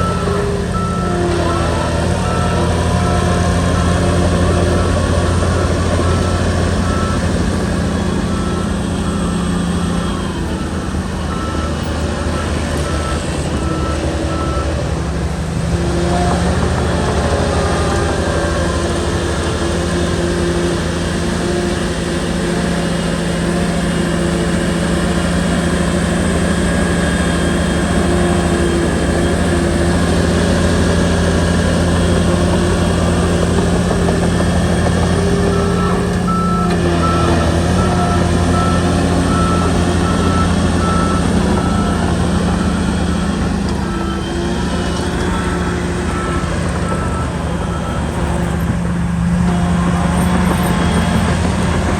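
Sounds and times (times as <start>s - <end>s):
reversing alarm beeps: 0.0s - 14.9s, 15.8s - 51.9s
bulldozer diesel engine running: 0.0s - 51.9s.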